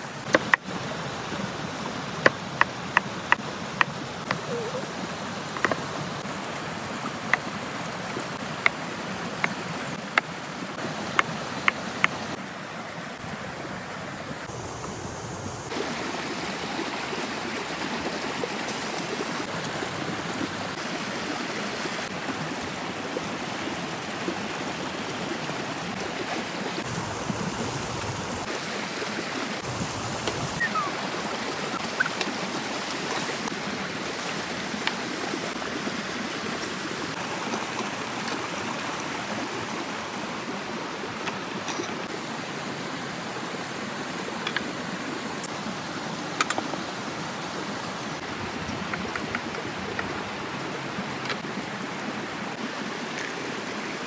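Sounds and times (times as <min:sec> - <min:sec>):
food sizzling over a fire: 0:26.8 - 0:28.6, 0:29.6 - 0:30.9.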